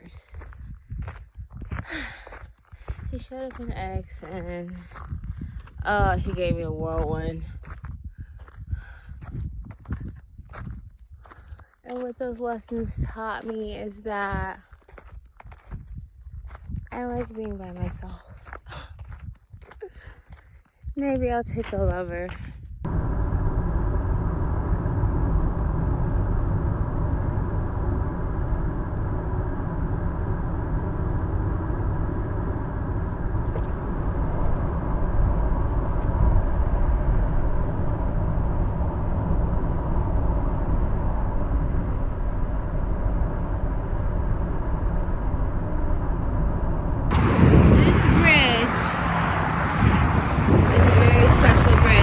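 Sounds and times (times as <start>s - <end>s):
faint steady hum: 22.8s - 48.9s
low rumbling noise: 22.8s - 52.0s.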